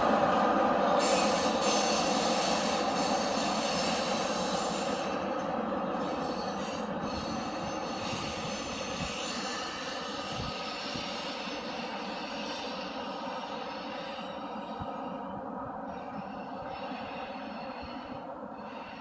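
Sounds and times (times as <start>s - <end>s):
faint wheel squeal: 0.9s - 14.8s.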